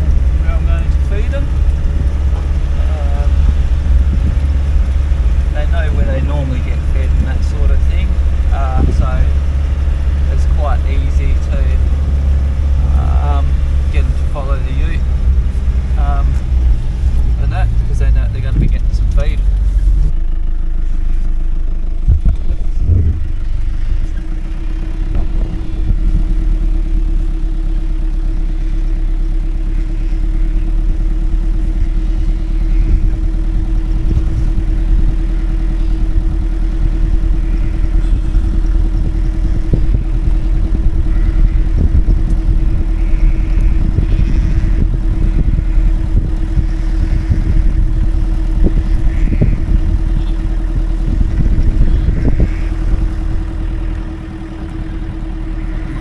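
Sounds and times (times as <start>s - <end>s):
knocks and rattles: 0.0s - 20.1s, 22.0s - 27.5s
vehicle engine droning: 0.0s - 56.0s.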